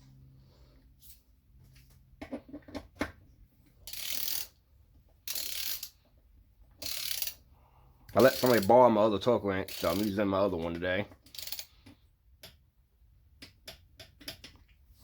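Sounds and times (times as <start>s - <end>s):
torque wrench ratchet clicking: 3.8s - 4.6s, 5.3s - 6.0s, 6.8s - 7.4s, 8.1s - 8.7s, 9.7s - 10.2s, 11.2s - 11.7s.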